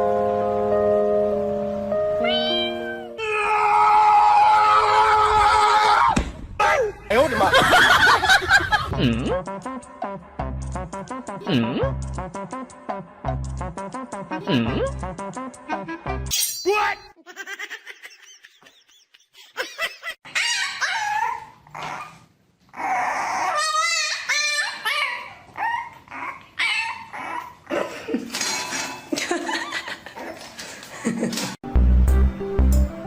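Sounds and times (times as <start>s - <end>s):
dogs barking and whining: 20.2s - 28.9s.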